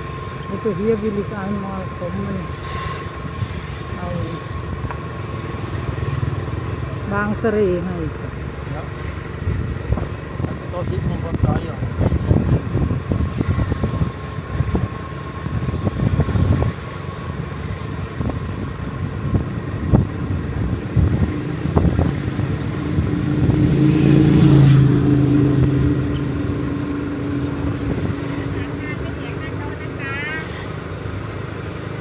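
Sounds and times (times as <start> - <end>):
motor engine humming: 0.0 - 32.0
low rumbling noise: 9.3 - 32.0.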